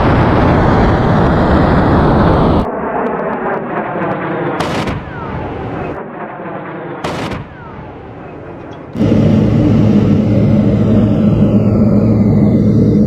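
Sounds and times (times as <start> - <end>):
steady rumble: 0.0 - 3.0, 3.8 - 6.1, 7.0 - 13.0
rotary cannon firing buzz: 3.6 - 13.0
sharp cracks: 4.6 - 6.0, 7.0 - 9.1.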